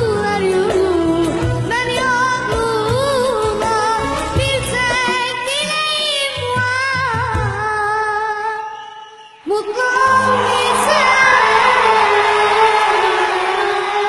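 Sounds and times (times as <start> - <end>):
audience cheering and applauding: 9.8 - 14.0.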